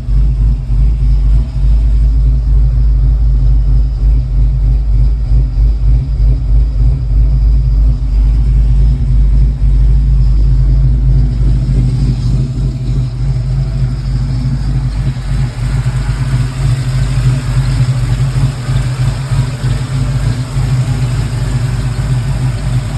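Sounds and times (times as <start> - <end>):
engine idling with choppy lope: 0.0 - 22.9.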